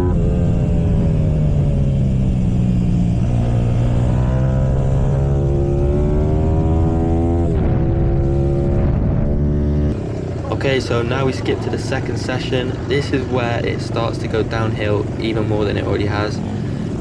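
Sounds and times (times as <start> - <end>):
motorbike engine accelerating: 0.0 - 17.0.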